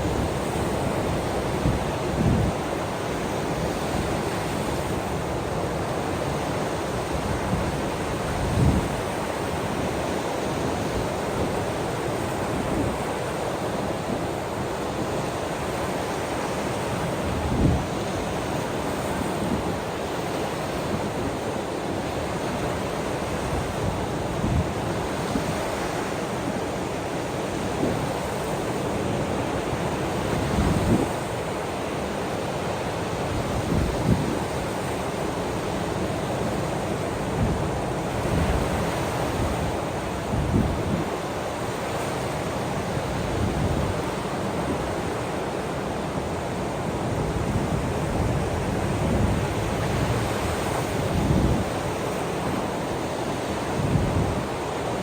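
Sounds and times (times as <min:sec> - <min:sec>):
wind buffeting the microphone: 0:00.0 - 0:05.6, 0:07.0 - 0:13.2, 0:17.2 - 0:20.0, 0:27.6 - 0:31.4, 0:33.1 - 0:41.3, 0:46.8 - 0:55.0
ocean surf washing: 0:00.0 - 0:55.0.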